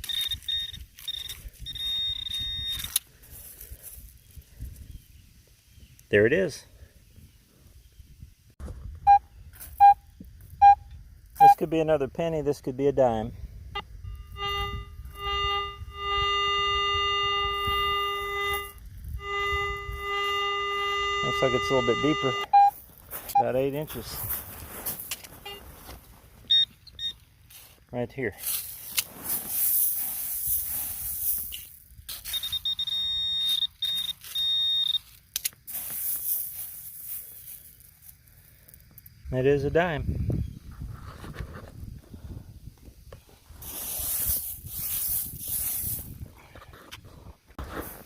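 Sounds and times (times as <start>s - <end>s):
metal detector tone: 0.0s - 3.0s, 9.1s - 11.8s, 13.8s - 24.2s, 25.4s - 25.7s, 26.4s - 27.2s, 32.1s - 35.6s
cicadas buzzing: 9.3s - 27.9s, 28.8s - 40.8s.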